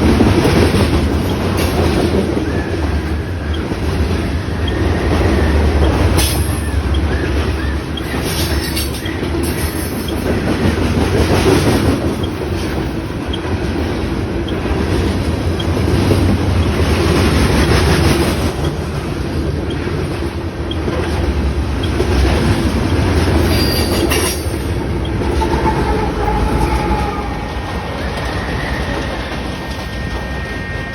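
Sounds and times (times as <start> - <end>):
freight train rumble: 0.0 - 30.9
wheels clacking over rail joints: 0.0 - 30.9
wheel squeals: 1.1 - 10.7, 19.4 - 30.9.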